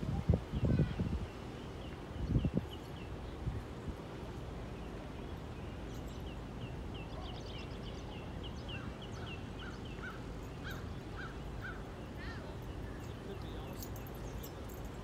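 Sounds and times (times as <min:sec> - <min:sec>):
songbirds chirping: 0:00.3 - 0:15.0.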